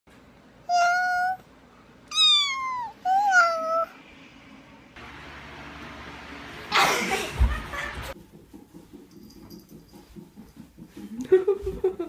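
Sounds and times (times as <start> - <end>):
cat meowing: 0.7 - 1.4, 2.1 - 4.0.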